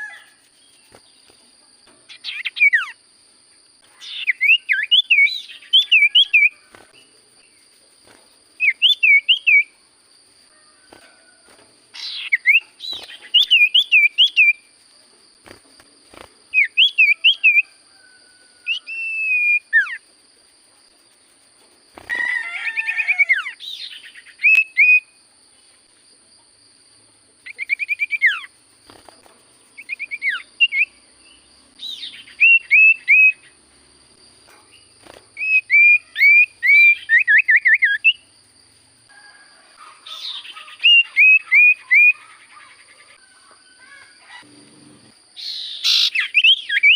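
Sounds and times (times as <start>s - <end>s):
bird whistled notes: 18.7s - 20.0s, 31.8s - 33.4s.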